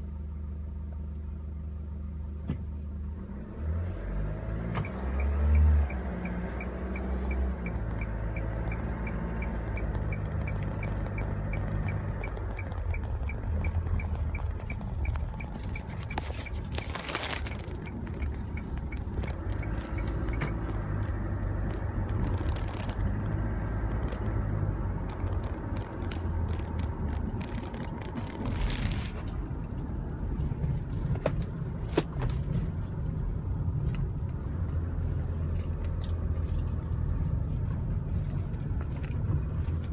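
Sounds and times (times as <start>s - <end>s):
truck engine running: 4.8s - 39.9s
fast regular ticking: 5.9s - 29.0s.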